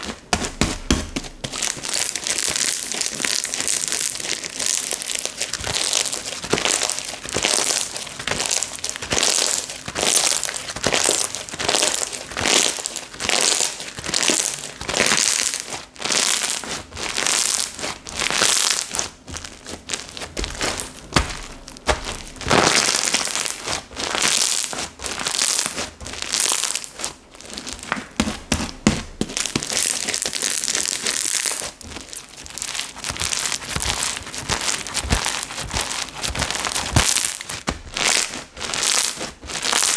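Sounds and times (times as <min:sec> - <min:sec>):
slime squishing by hand: 0:00.0 - 0:39.9.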